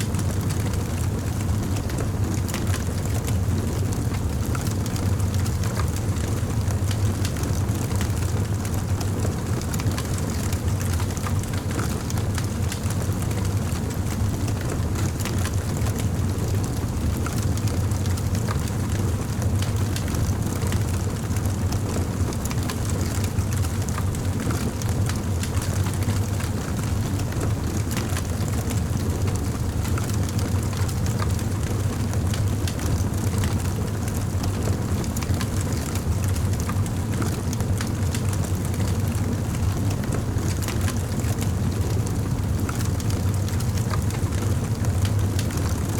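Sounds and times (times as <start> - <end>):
low rumble of flames: 0.0 - 45.9
fire crackling and popping: 27.2 - 45.9.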